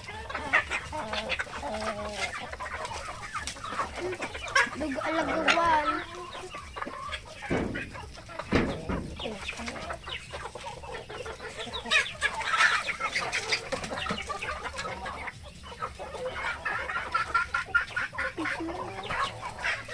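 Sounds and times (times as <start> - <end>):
chickens clucking: 0.0 - 19.9
dull low thumps: 7.4 - 9.3.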